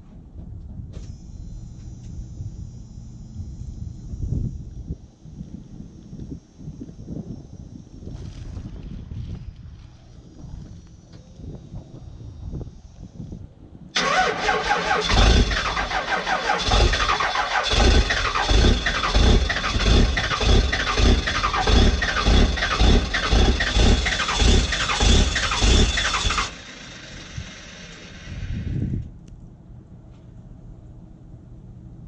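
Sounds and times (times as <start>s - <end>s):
diesel engine cranking: 14.0s - 28.8s
starter motor whine: 14.0s - 29.0s.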